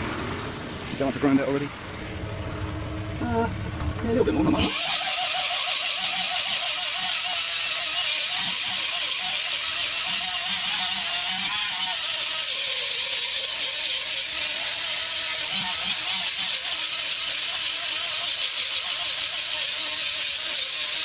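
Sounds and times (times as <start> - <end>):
power grinder buffing rubber: 4.6 - 21.0.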